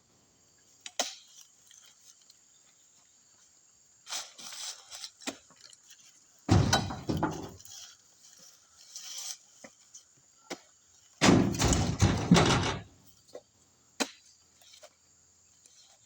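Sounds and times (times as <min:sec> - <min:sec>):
heavy bunch landing thump: 0:06.5 - 0:07.6, 0:11.2 - 0:12.9
light knocks and rattles: 0:06.5 - 0:07.7, 0:11.2 - 0:13.0.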